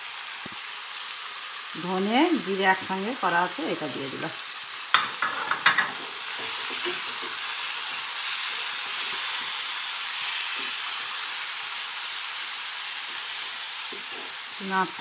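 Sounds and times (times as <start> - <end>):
chicken sizzling in a pan: 0.0 - 15.0
spatula stirring in a pan: 4.8 - 15.0.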